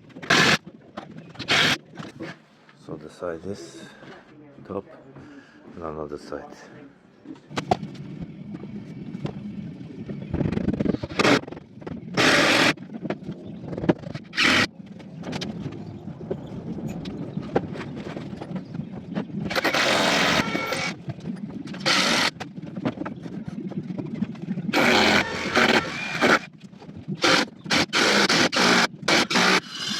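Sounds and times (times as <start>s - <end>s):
handheld power tool bursts: 0.2s - 0.6s, 1.4s - 1.8s, 12.2s - 12.8s, 14.3s - 14.7s, 19.5s - 21.0s, 21.8s - 22.4s, 24.8s - 26.5s, 27.2s - 29.9s.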